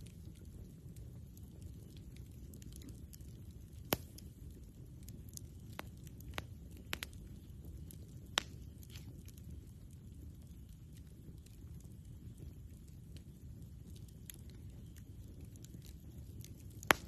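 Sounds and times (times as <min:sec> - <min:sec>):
campfire crackling pops: 0:00.0 - 0:17.0
low steady fire rumble: 0:00.0 - 0:17.0.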